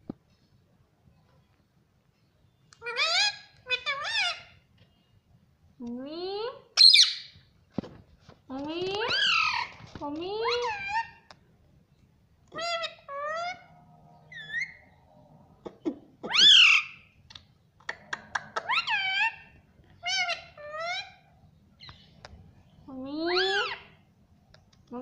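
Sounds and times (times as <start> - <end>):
parrot calling: 2.8 - 4.6, 6.8 - 7.3, 9.0 - 9.8, 12.5 - 15.0, 15.6 - 17.2, 17.9 - 21.3, 23.2 - 24.0
parrot squawk: 2.8 - 4.6, 12.6 - 13.7, 16.2 - 17.1, 18.5 - 21.2.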